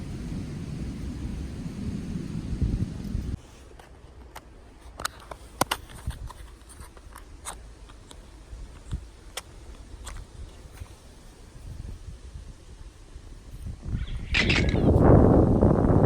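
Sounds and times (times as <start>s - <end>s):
sharp clicks of objects handled: 14.3s - 15.0s.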